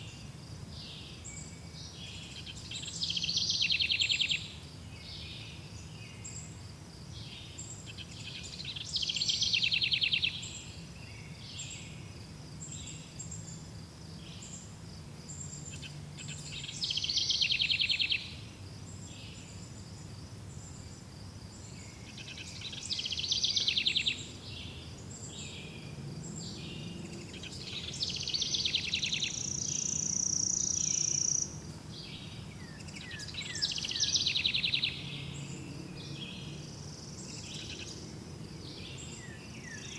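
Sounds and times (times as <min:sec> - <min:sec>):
songbird trilling: 0:26.8 - 0:35.3.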